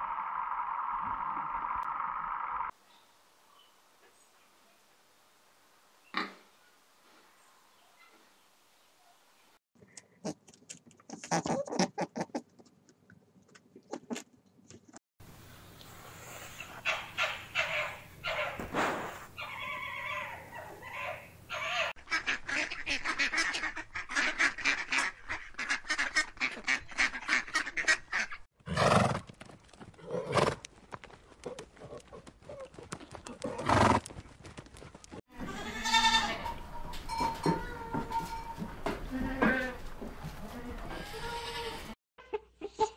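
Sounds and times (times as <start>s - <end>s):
rapid cackling calls: 16.5s - 28.5s.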